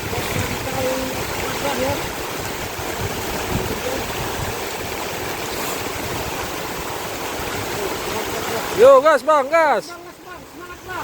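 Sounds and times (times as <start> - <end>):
strong wind: 0.0 - 7.8
heavy rain pouring: 0.0 - 11.0.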